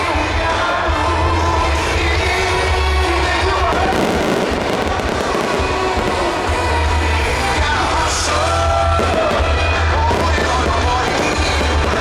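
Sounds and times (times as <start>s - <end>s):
loud music with singing: 0.0s - 12.0s
dense crackling noise: 3.6s - 12.0s.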